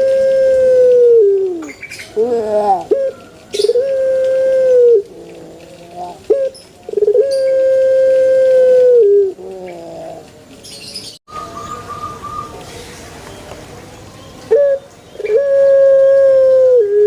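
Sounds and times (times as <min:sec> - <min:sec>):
dove cooing: 0:00.0 - 0:10.5, 0:14.5 - 0:17.0
higher wavering bird call: 0:02.8 - 0:05.1.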